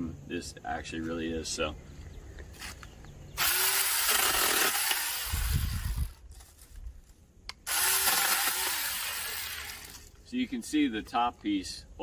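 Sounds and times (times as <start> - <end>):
chainsaw cutting branch: 3.4 - 6.2, 7.5 - 10.1.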